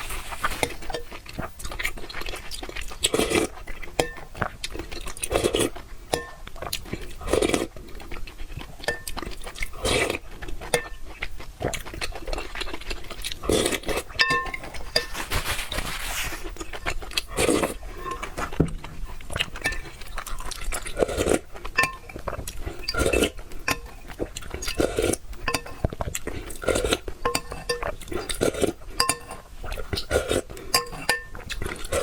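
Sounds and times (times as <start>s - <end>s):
slurping and chewing: 0.0s - 32.0s
utensils clinking against bowl: 4.0s - 4.4s, 6.1s - 6.5s, 8.8s - 10.0s, 10.7s - 11.1s, 13.5s - 16.1s, 16.8s - 18.5s, 19.6s - 20.3s, 21.7s - 22.2s, 22.8s - 32.0s.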